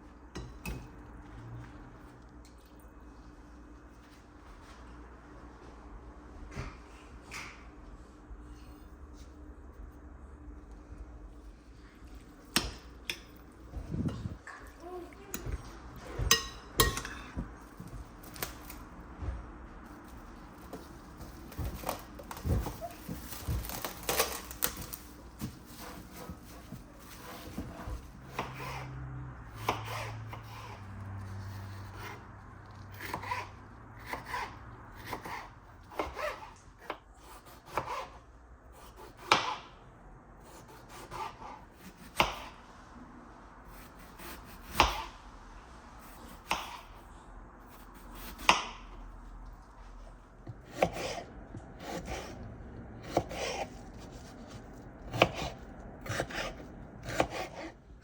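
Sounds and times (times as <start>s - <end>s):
knife chopping on wooden board: 33.0s - 38.2s, 38.8s - 39.7s, 40.5s - 42.6s, 46.3s - 46.9s, 48.2s - 48.8s, 50.5s - 52.4s, 53.0s - 57.8s.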